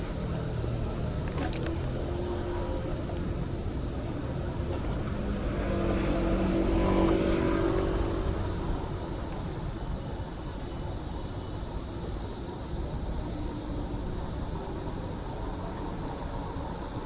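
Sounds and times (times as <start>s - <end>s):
motor vehicle passing close by: 4.4s - 9.1s.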